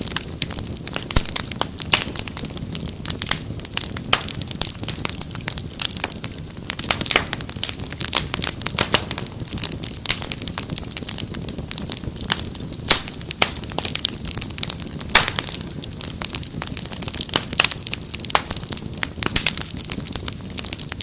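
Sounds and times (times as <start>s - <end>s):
low rumble of flame: 0.0s - 21.0s
wood fire crackling: 0.0s - 21.0s
sharp pops and snaps: 0.4s - 2.4s, 3.1s - 21.0s.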